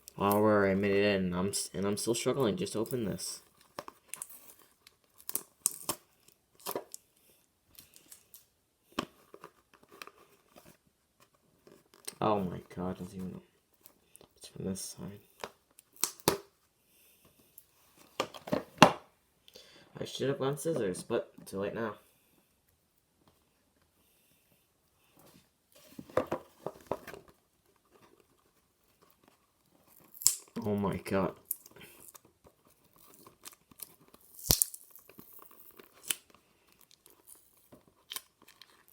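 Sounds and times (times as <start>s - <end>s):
packing tape crinkling: 31.4s - 38.9s.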